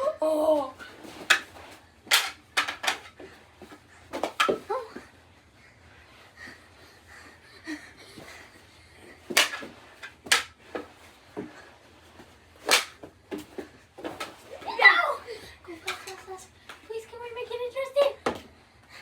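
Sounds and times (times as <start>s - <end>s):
hockey sticks and ball clacking: 0.6s - 5.0s, 9.2s - 11.6s, 12.2s - 15.1s, 15.7s - 16.9s.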